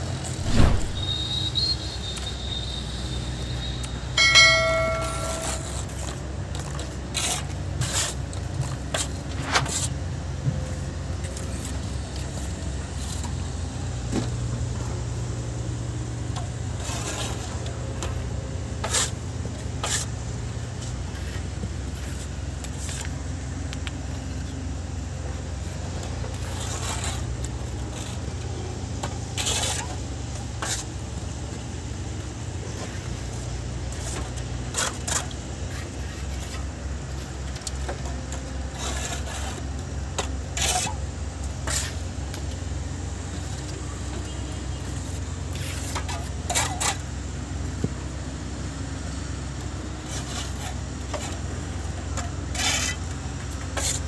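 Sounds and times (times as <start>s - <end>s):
trowel clinking and scraping: 4.2s - 6.2s.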